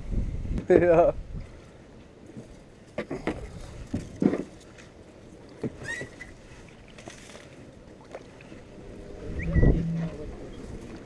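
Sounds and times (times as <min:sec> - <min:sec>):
wind and water: 0:00.0 - 0:11.0
paddle splashes and knocks: 0:02.3 - 0:08.7
whistle-like chirp: 0:09.3 - 0:10.0.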